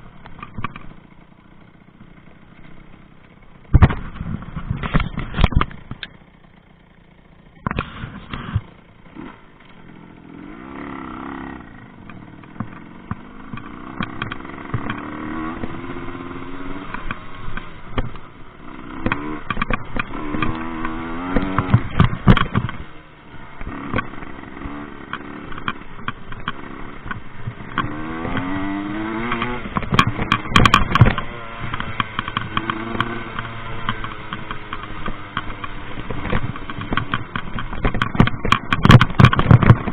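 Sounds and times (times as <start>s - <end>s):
two-stroke engine revving: 0.0s - 39.9s.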